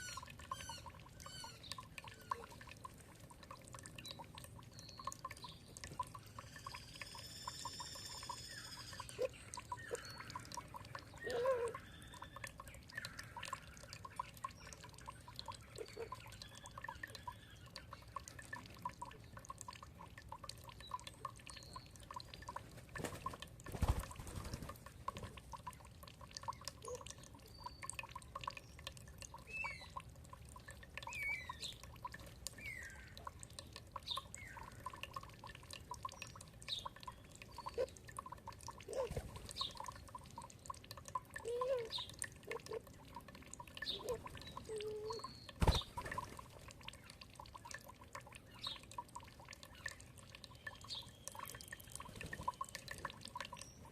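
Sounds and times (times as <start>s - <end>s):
water dripping and trickling: 0.0s - 53.9s
birds calling: 36.1s - 38.0s, 43.8s - 46.2s.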